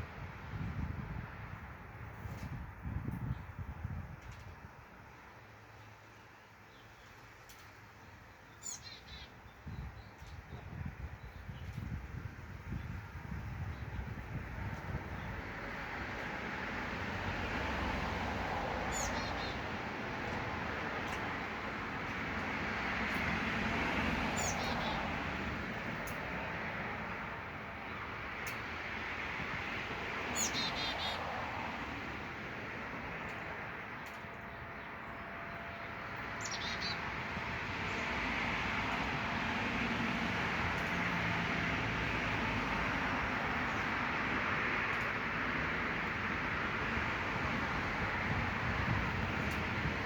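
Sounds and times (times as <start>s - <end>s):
songbird chirping: 5.8s - 10.6s, 24.3s - 25.0s
passing traffic rushing: 10.4s - 50.0s
high bird chirp: 18.9s - 19.6s, 24.4s - 25.0s, 30.3s - 31.2s.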